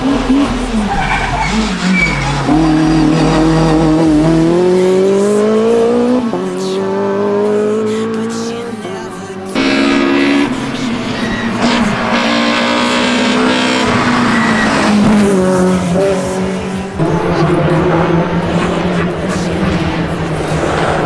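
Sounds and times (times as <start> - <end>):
rally car engines at full throttle: 0.0 - 21.0
tyre squeal: 0.8 - 3.4, 9.6 - 15.4.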